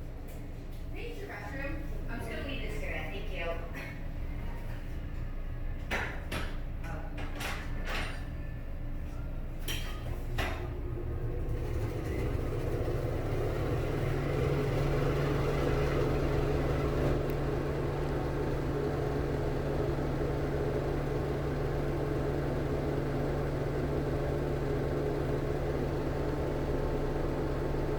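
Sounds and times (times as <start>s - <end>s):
exhaust fan humming: 0.0s - 27.9s.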